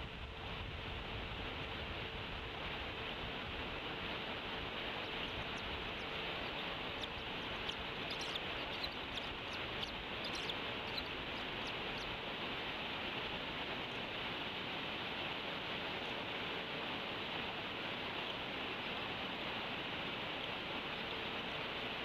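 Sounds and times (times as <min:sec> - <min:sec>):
steady hiss: 0:00.0 - 0:22.0
high bird chirps: 0:04.9 - 0:12.2.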